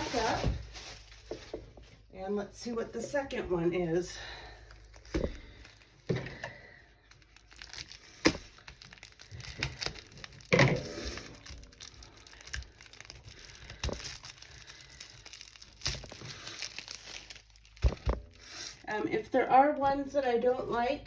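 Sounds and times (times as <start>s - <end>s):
crinkling plastic and paper: 0.0s - 2.1s, 4.2s - 21.0s.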